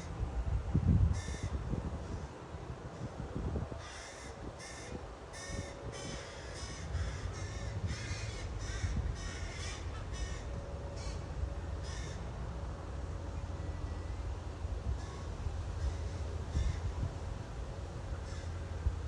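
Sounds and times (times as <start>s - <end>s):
steady low rumble: 0.0s - 19.0s
birds giving harsh caw-like calls: 1.2s - 1.6s, 3.8s - 11.2s, 11.8s - 12.2s.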